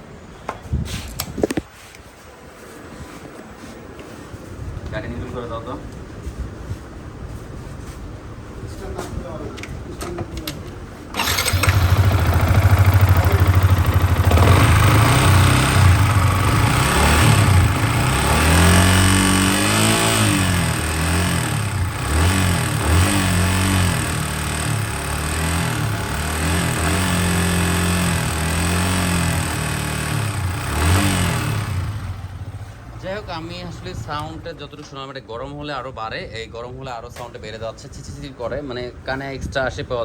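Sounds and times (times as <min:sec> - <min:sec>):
motorcycle engine starting and revving: 0:11.1 - 0:34.5
engine chattering tick: 0:11.2 - 0:18.4.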